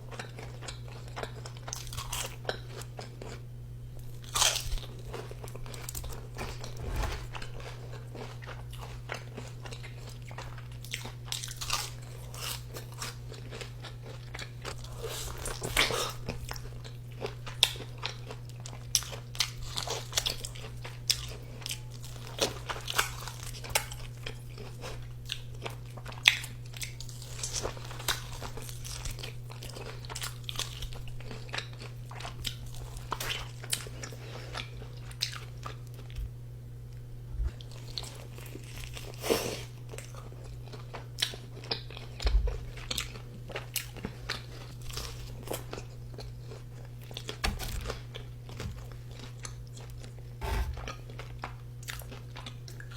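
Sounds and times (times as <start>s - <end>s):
steady low hum: 0.0s - 9.2s, 42.0s - 52.0s
crunchy food chewing: 0.0s - 52.9s.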